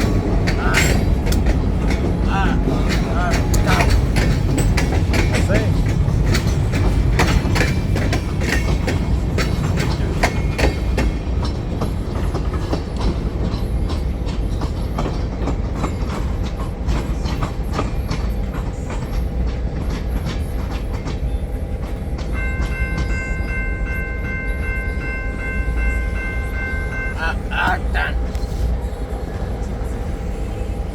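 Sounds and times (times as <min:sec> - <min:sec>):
wheels clicking over rail joints: 0:00.0 - 0:27.1
train rumbling on track: 0:00.0 - 0:30.9
steady chord of high tones: 0:22.4 - 0:28.4.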